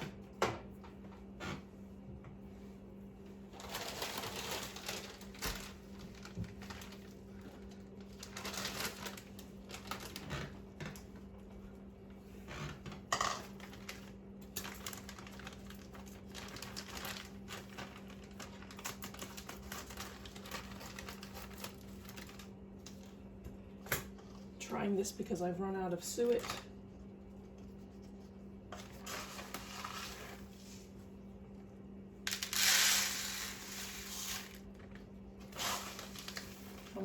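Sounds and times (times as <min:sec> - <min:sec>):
plastic packaging being handled: 0:03.5 - 0:11.0, 0:13.4 - 0:23.1, 0:27.7 - 0:31.0, 0:32.3 - 0:37.0.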